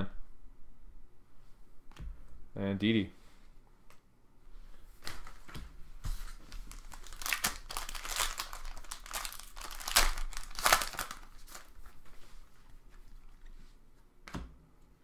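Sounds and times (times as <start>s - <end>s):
card pack wrapper tearing and crinkling: 6.5s - 11.8s.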